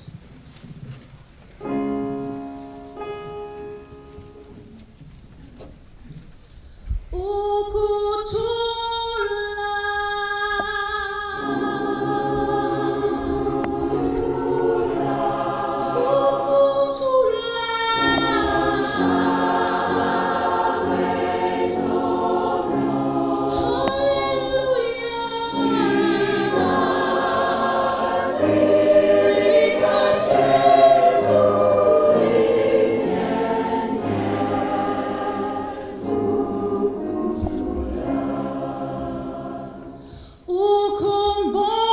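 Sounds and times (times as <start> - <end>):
choir singing in harmony: 11.1 - 40.4.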